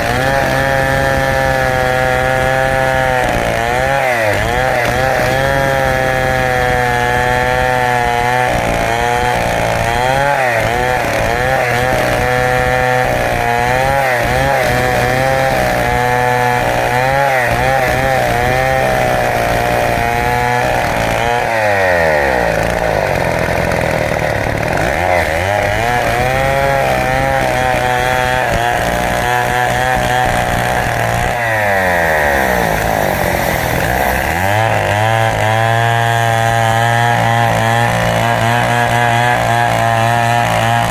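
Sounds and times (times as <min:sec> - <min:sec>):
chainsaw cutting log at high revs: 0:00.0 - 0:40.9.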